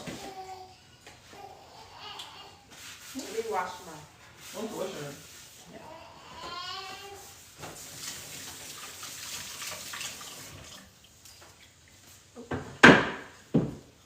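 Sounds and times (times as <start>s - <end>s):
loud knocks: 12.6s - 13.8s.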